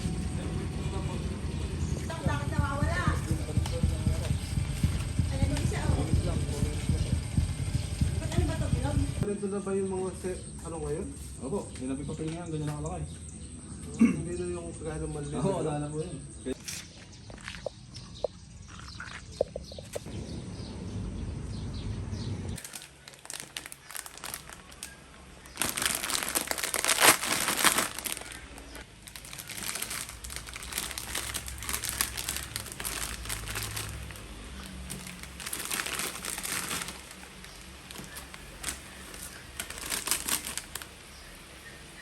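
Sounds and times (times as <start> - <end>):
low rumbling noise: 0.0 - 10.3, 19.8 - 42.0
crinkling and rustling: 22.6 - 41.1.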